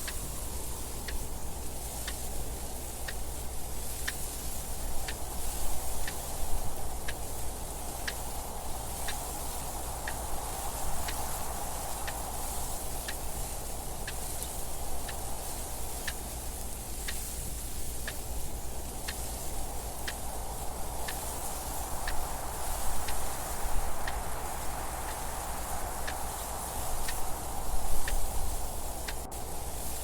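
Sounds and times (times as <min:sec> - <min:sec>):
clock ticking: 0:00.0 - 0:01.3, 0:02.0 - 0:07.4, 0:12.9 - 0:16.4, 0:18.0 - 0:18.4, 0:20.0 - 0:24.3, 0:25.0 - 0:30.0
steady wind noise: 0:00.0 - 0:30.0.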